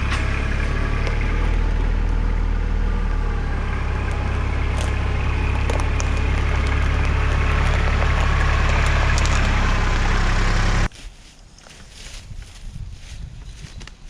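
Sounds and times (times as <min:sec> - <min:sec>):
tractor diesel engine running: 0:00.0 - 0:10.9
quiet outdoor background: 0:00.0 - 0:14.0.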